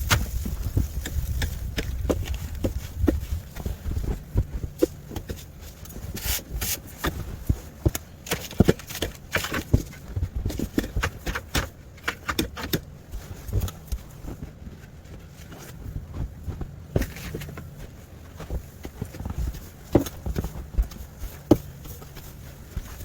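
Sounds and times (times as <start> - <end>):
wind rumble on microphone: 0.0 - 6.2
footsteps crunching in snow: 0.0 - 10.7.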